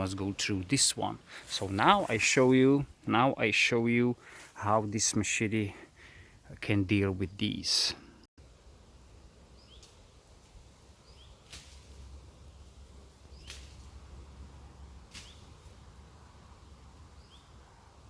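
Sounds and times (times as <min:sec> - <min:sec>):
machete chopping branches: 0:11.4 - 0:12.1, 0:13.4 - 0:14.0, 0:15.1 - 0:15.6.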